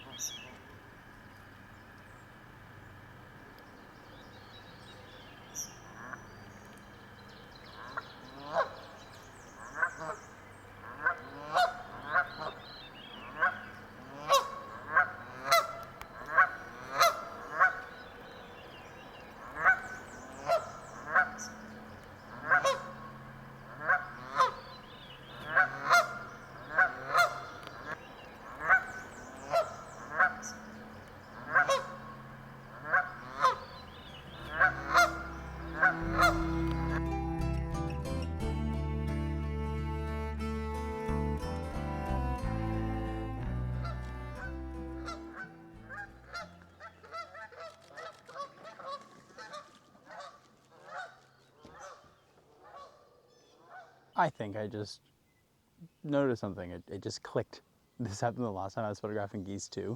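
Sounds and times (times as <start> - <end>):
geese honking: 5.0 - 37.3, 41.8 - 54.0.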